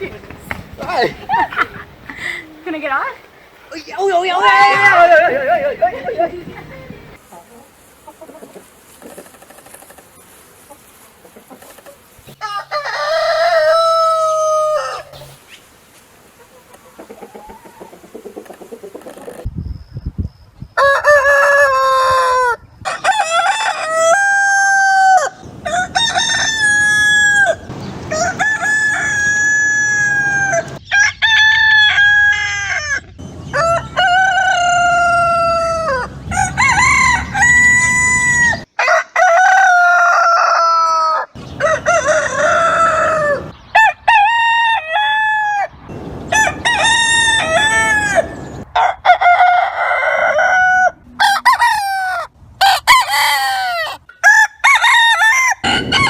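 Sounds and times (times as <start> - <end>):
roosters crowing: 3.7 - 19.5, 20.8 - 56.0.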